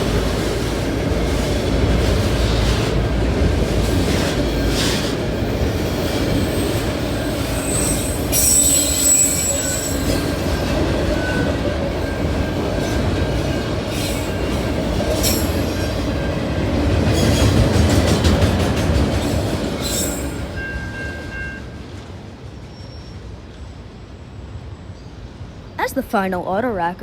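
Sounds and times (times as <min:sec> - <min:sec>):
train wheels rumbling on rails: 0:00.0 - 0:25.9
high wheel squeal: 0:06.4 - 0:10.4, 0:19.8 - 0:21.6.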